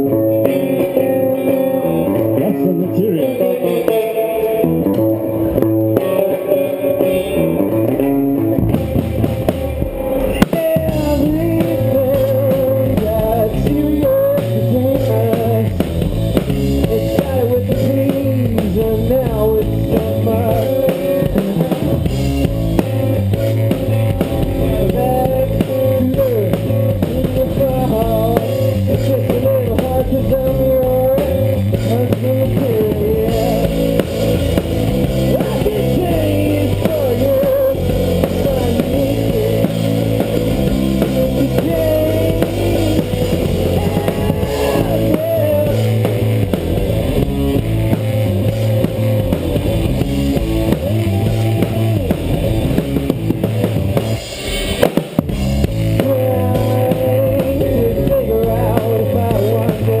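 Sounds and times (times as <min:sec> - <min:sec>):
rock band playing live: 0:00.0 - 1:00.0.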